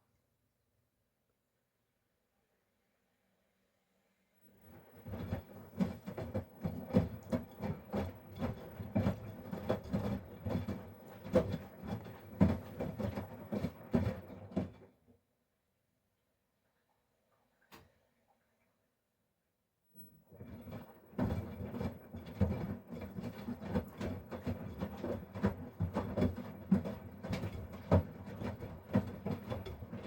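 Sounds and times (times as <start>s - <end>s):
washing machine drum turning: 20.3s - 30.0s.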